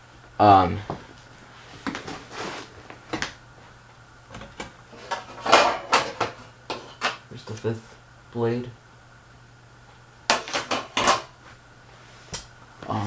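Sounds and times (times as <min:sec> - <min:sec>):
fan blades knocking and clattering: 0:04.3 - 0:07.6.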